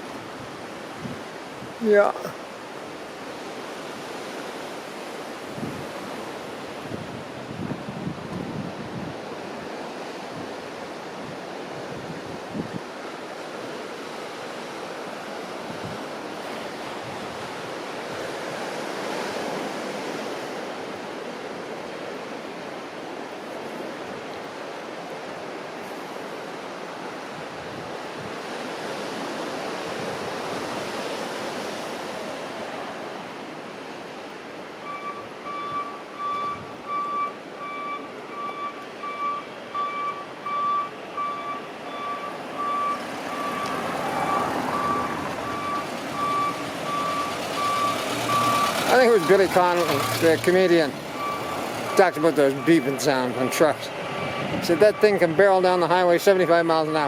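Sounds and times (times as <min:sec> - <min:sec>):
ocean surf washing on shore: 0:00.0 - 0:57.0
truck reversing alarm beeping: 0:34.8 - 0:57.0.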